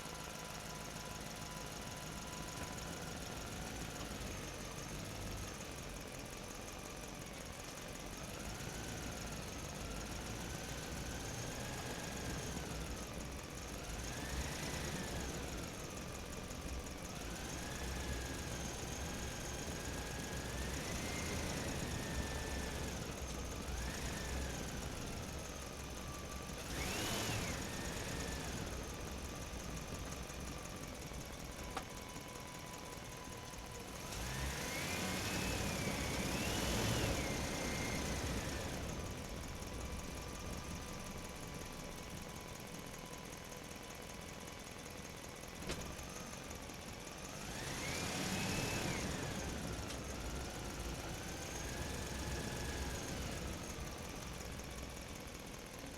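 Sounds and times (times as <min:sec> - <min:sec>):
toy truck motor whine: 0:26.0 - 0:30.4, 0:33.4 - 0:39.7, 0:47.3 - 0:54.3.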